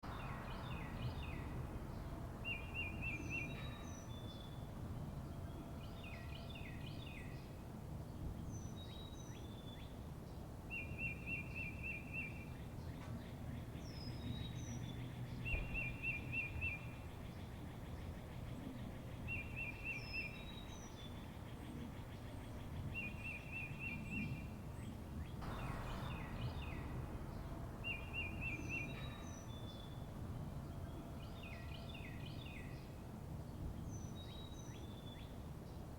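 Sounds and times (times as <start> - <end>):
low background rumble: 0.0 - 6.0, 25.4 - 32.5
bird chirps: 25.4 - 32.8
high whistled bird notes: 25.5 - 29.9.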